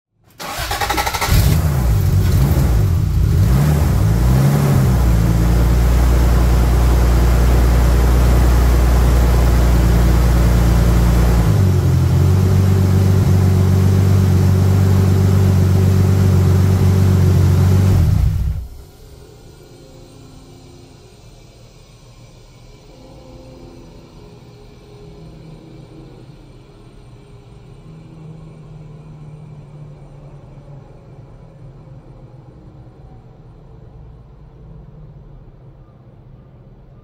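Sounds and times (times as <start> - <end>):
car engine starting and idling: 0.3 - 18.9.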